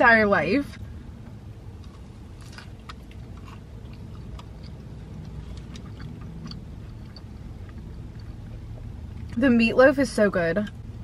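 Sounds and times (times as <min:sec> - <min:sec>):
low steady hum: 0:00.0 - 0:11.0
chewing with wet crunches: 0:01.7 - 0:09.5.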